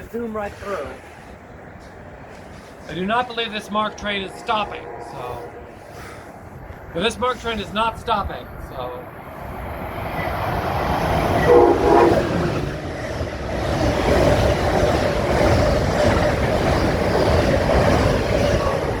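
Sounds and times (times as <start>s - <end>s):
train passing at speed: 0.0s - 19.0s
train horn blast: 3.2s - 6.4s, 11.4s - 12.6s.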